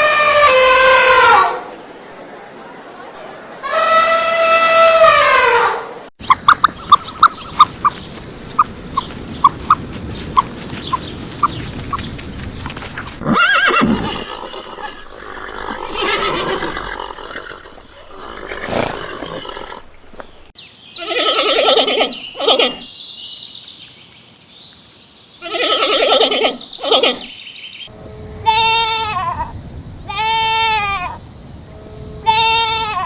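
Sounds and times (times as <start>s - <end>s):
animal bleating: 28.4s - 29.5s, 30.1s - 31.2s, 32.2s - 33.0s.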